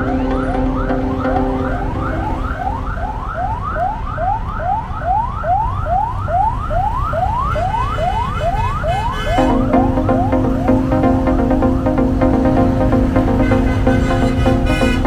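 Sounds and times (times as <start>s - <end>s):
electronic music held chords: 0.0s - 4.1s, 9.4s - 15.0s
siren-like rising sweeps: 0.0s - 5.6s, 9.4s - 15.0s.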